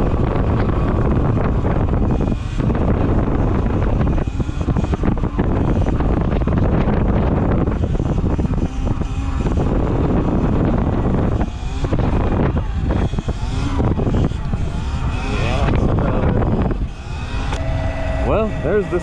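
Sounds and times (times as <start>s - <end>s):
electric motor whine: 0.0s - 19.0s
wind buffeting microphone: 0.0s - 19.0s.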